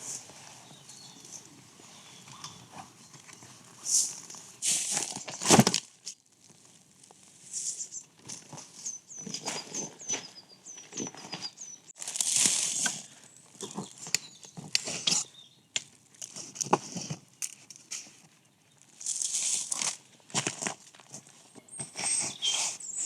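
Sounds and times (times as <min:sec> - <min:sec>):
rustling and crinkling: 0:00.0 - 0:23.0
small bird chirping: 0:00.6 - 0:03.5, 0:07.6 - 0:08.1, 0:08.8 - 0:12.0, 0:13.2 - 0:15.8, 0:21.6 - 0:23.0.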